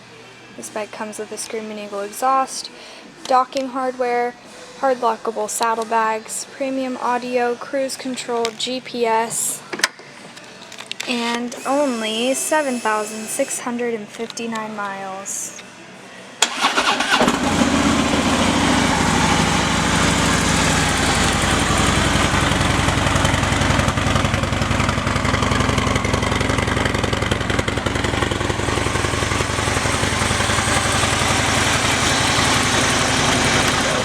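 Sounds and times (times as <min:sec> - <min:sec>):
motorcycle engine starting and idling: 0:16.4 - 0:34.0.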